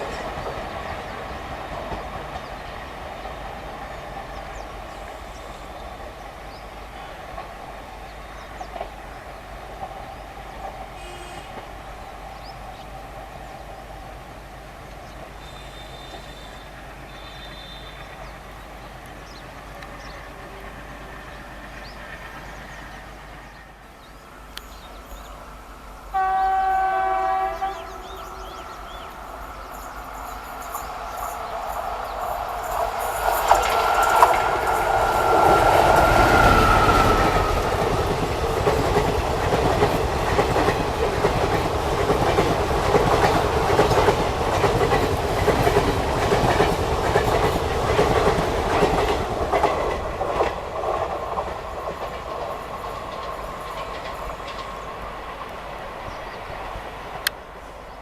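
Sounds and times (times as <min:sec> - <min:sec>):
train horn blast: 0:11.0 - 0:11.8, 0:15.4 - 0:18.2, 0:19.8 - 0:21.3, 0:26.1 - 0:29.2
train wheels clattering: 0:27.4 - 0:55.7.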